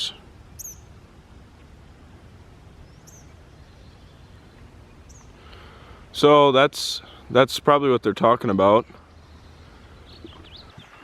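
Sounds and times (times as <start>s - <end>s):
small bird chirping: 0.0s - 0.9s, 2.8s - 5.6s, 8.8s - 11.0s
low outdoor rumble: 0.0s - 11.0s.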